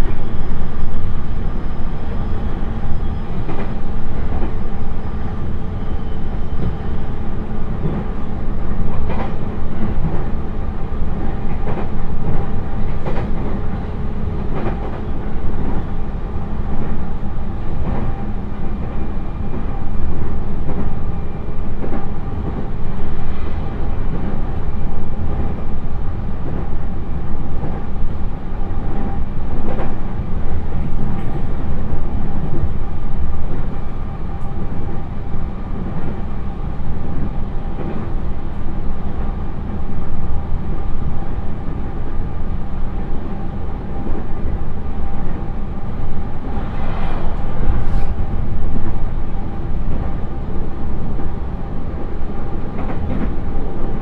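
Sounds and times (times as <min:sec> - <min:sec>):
train rolling roar with droning hum: 0:00.0 - 0:54.0
faint rail clacks: 0:03.4 - 0:04.6, 0:07.7 - 0:10.4, 0:11.1 - 0:16.0, 0:17.7 - 0:21.0, 0:26.4 - 0:39.9, 0:51.9 - 0:54.0.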